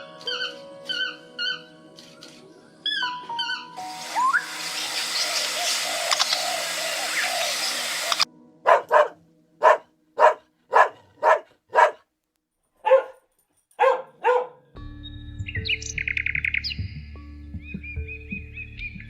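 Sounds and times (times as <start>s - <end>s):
bird trill: 0.0s - 8.2s, 15.0s - 19.0s
birds chirping: 0.0s - 12.0s, 15.4s - 19.0s
dog barking: 8.6s - 12.1s, 12.8s - 14.7s.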